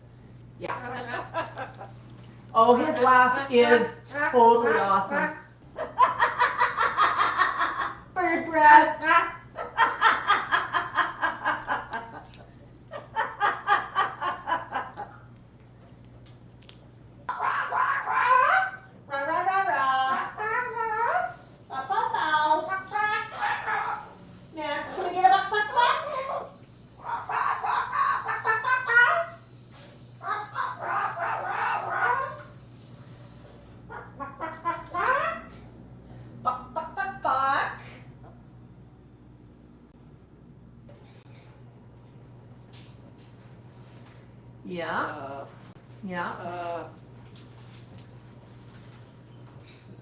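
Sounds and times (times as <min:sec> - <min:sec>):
parrot mimicking laughter: 0:05.8 - 0:08.1, 0:09.6 - 0:15.2, 0:17.3 - 0:18.9, 0:19.9 - 0:24.1, 0:24.9 - 0:29.4, 0:30.2 - 0:32.5, 0:33.9 - 0:35.6
cockatoo imitating chicken clucking: 0:17.3 - 0:18.9, 0:19.8 - 0:24.2, 0:25.7 - 0:29.4, 0:30.2 - 0:32.5, 0:33.9 - 0:35.6.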